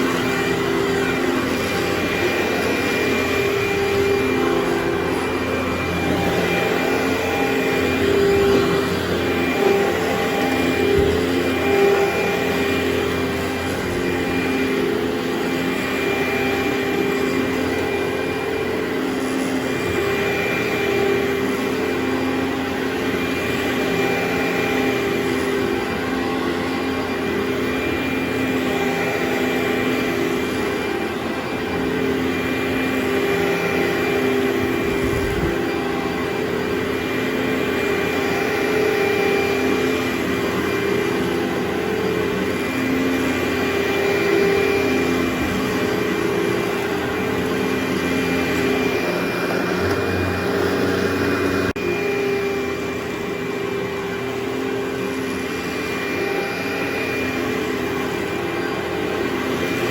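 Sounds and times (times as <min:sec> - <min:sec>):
carpet cleaner vacuum droning: 0:00.0 - 0:59.9.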